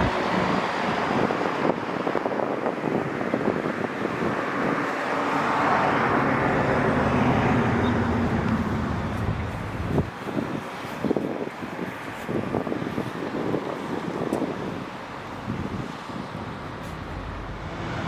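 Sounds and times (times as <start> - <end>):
vehicle engine running: 0.0 - 1.4, 5.3 - 10.9.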